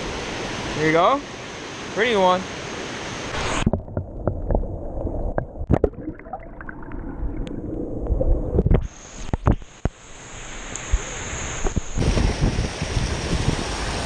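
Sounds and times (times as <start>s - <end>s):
hiss of rain and river: 0.0s - 3.8s, 8.6s - 14.0s
muffled water gurgling and sloshing: 3.1s - 13.6s.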